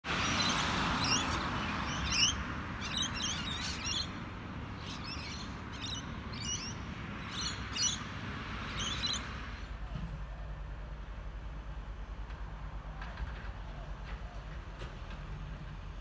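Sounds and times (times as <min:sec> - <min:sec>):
birds chirping: 0:00.1 - 0:09.7.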